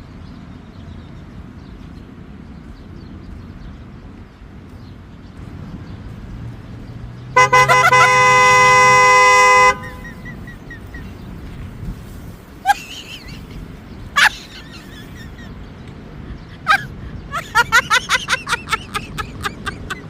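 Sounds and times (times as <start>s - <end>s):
loud horn blast: 7.4s - 10.2s.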